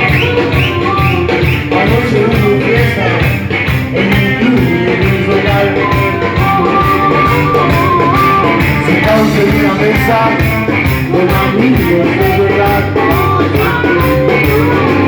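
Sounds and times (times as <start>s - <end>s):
rock band playing: 0.0s - 15.0s
steady drum beat: 0.0s - 15.0s.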